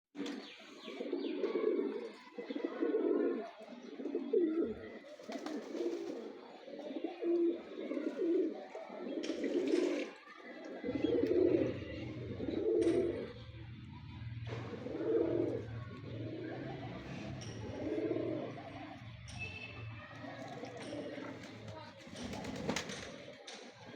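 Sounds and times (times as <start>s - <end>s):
pigeons cooing: 0.2s - 19.0s.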